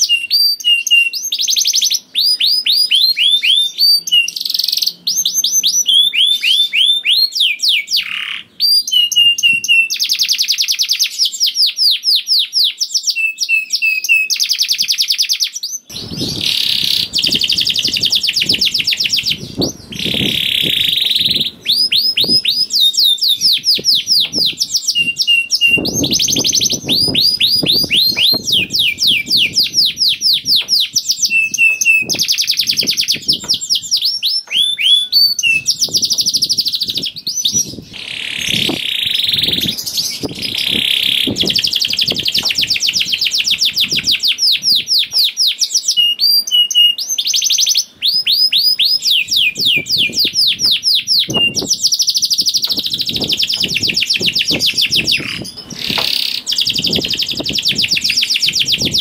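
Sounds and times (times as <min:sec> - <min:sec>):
canary singing trills: 0:00.0 - 0:59.0
low thuds: 0:15.9 - 0:22.6, 0:23.4 - 0:33.8.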